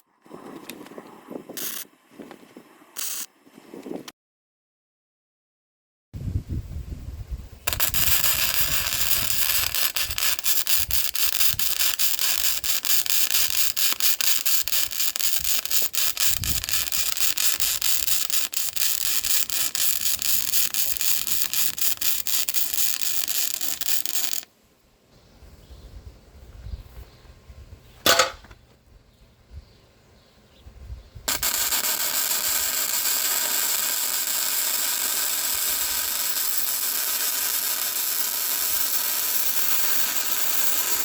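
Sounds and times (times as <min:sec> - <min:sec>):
welding arc crackling: 0:01.6 - 0:01.9, 0:03.0 - 0:03.3, 0:07.7 - 0:24.5, 0:31.3 - 0:41.0.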